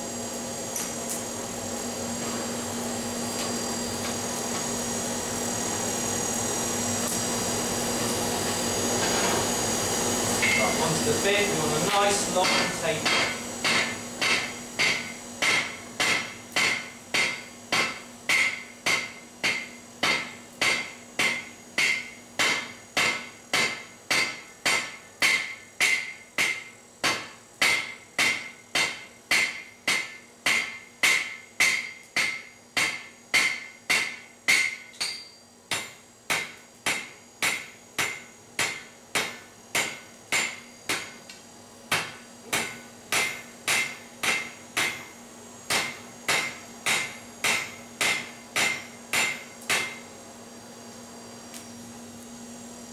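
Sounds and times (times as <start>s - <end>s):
hammer striking steel on anvil: 10.4s - 10.8s, 11.9s - 41.2s, 41.9s - 45.1s, 45.7s - 50.1s.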